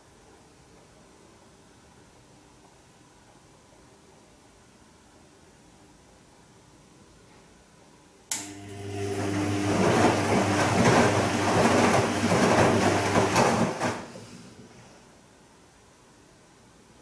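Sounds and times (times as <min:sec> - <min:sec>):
washing machine click: 0:08.3 - 0:08.8
washing machine motor hum: 0:08.3 - 0:15.0
wet laundry tumbling: 0:08.9 - 0:14.9.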